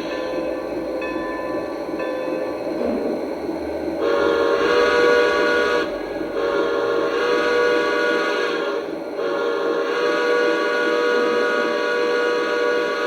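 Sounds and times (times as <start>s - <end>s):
model train running: 0.0s - 13.0s
steam whistle blasts: 4.0s - 13.0s.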